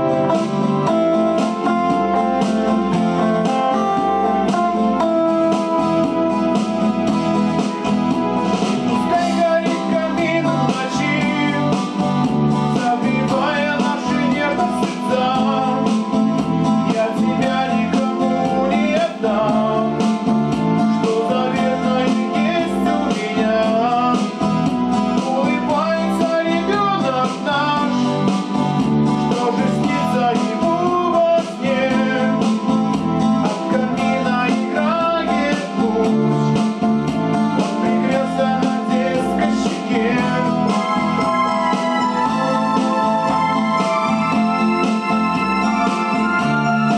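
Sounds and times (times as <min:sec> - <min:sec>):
lead melody gliding in pitch: 0:00.0 - 0:12.7, 0:40.2 - 0:46.9
guitar: 0:00.0 - 0:46.9
steady backing beat: 0:00.0 - 0:46.9.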